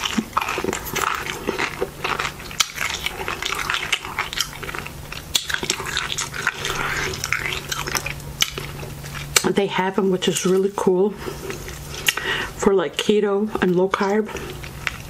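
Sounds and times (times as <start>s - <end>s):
chips being crunched and chewed: 0.0s - 9.5s.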